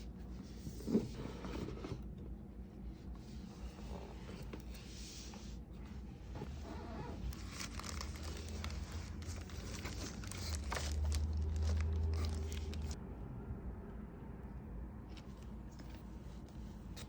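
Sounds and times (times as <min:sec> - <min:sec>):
low handling rumble: 0:05.6 - 0:16.8
packaging crinkling and tearing: 0:07.1 - 0:13.0.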